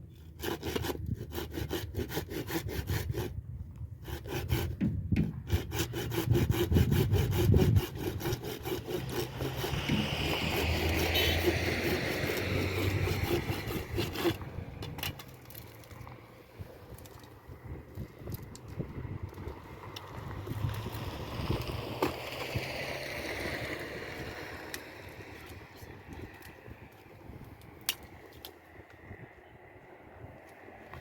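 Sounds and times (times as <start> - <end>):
hand saw cutting wood: 0.2 - 3.4, 4.0 - 15.9.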